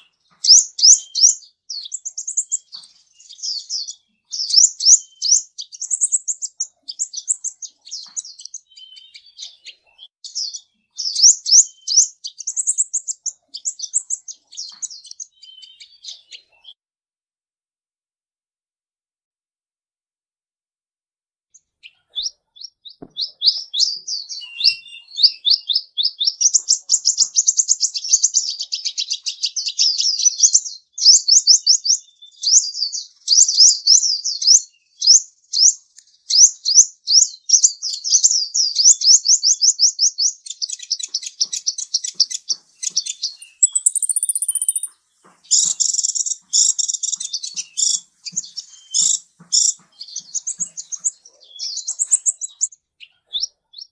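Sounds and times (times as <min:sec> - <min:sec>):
bird chirping in fast trills: 0:00.0 - 0:16.8, 0:21.8 - 0:53.9
whistled bird note: 0:23.0 - 0:25.7, 0:43.4 - 0:44.9.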